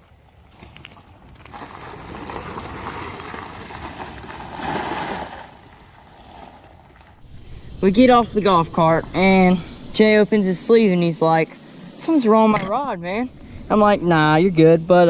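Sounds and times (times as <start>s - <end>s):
golf cart driving: 0.5s - 7.2s.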